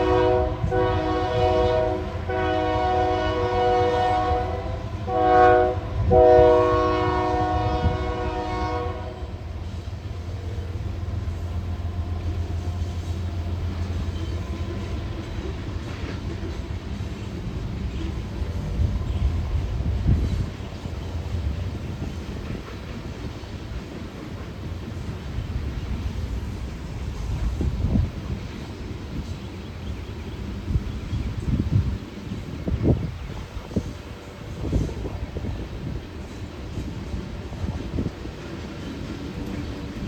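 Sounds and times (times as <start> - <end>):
train horn blasts: 0.0 - 9.8
train rumbling by: 0.0 - 40.0.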